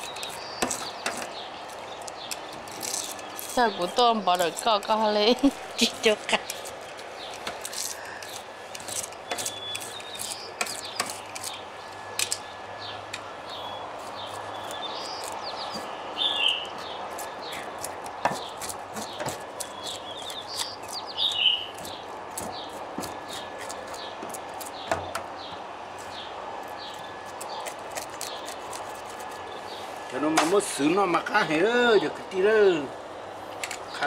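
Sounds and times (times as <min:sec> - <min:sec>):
high bird chirps: 0:08.2 - 0:24.2.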